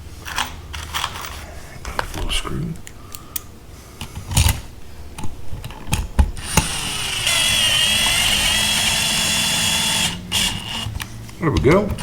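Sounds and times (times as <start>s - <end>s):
power drill whining: 6.4s - 10.9s
handling clicks and knocks: 10.9s - 12.0s.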